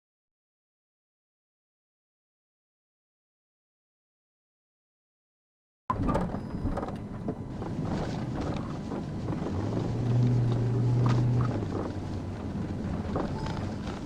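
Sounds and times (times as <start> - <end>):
vehicle engine and road noise: 5.9 - 14.0.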